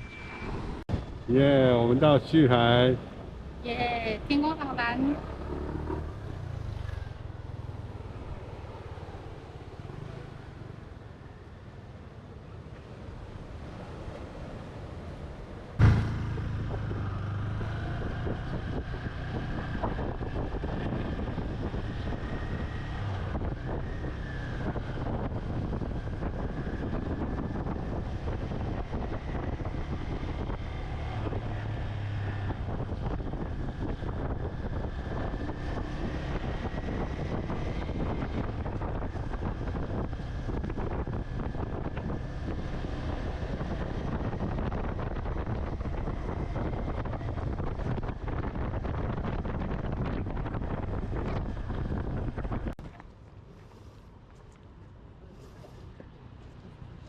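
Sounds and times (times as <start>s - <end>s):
wind buffeting microphone: 15.8s - 52.9s.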